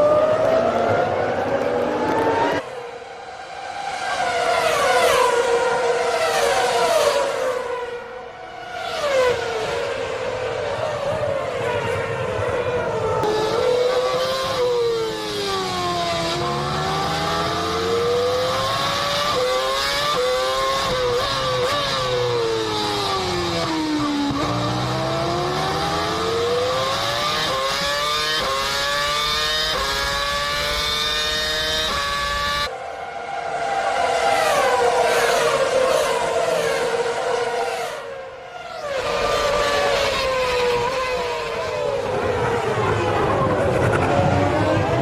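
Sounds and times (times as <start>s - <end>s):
racing car engine revving: 12.8s - 38.1s.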